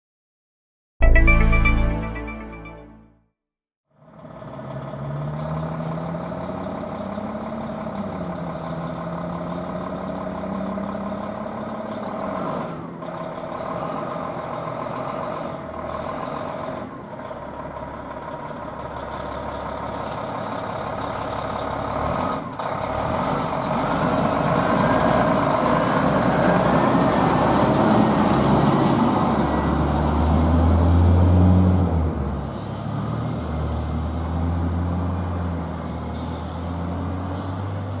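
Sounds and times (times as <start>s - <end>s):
fire truck diesel engine: 4.0s - 38.0s
air brake hiss: 28.8s - 29.2s, 36.1s - 36.8s.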